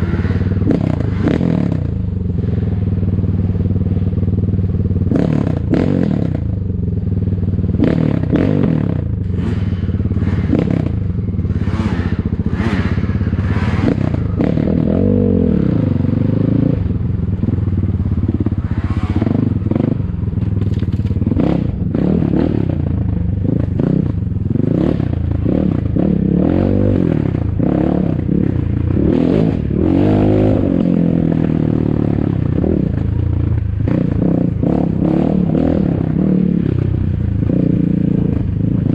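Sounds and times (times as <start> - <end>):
motorcycle engine revving: 0.0 - 38.9
bike clattering and knocking: 19.8 - 21.5.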